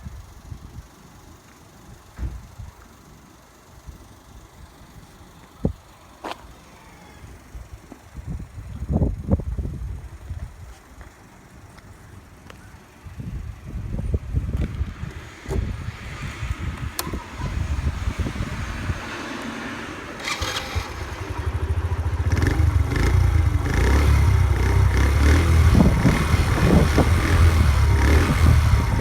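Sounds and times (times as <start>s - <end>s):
small engine starting and idling: 16.9s - 29.0s.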